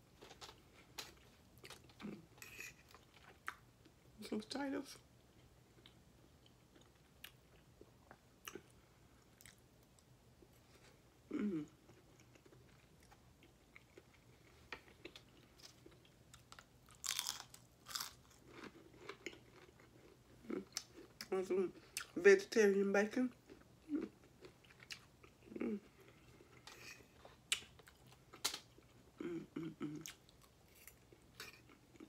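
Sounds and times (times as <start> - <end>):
quiet chewing: 0.1 - 3.6, 5.3 - 22.2, 23.4 - 32.0
crunchy chewing: 11.8 - 21.2.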